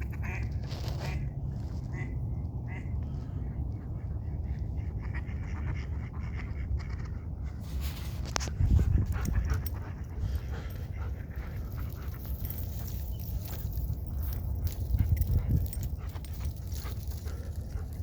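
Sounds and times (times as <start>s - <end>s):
dog panting: 8.6s - 18.0s.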